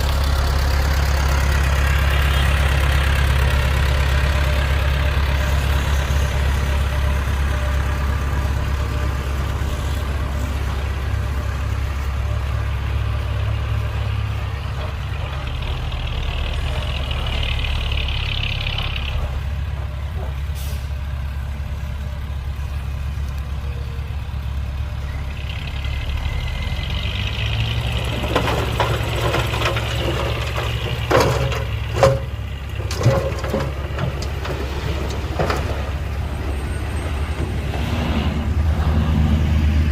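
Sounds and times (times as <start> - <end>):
diesel machinery running: 0.0 - 39.9
loud clanks and knocks: 27.8 - 36.2.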